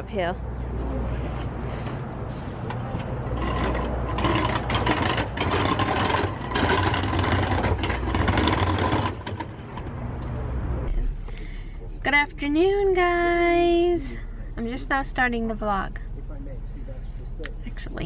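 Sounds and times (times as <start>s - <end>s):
tyre and road noise: 0.0s - 18.0s
vehicle engine pulling uphill: 0.0s - 18.0s
rattles: 2.6s - 10.3s.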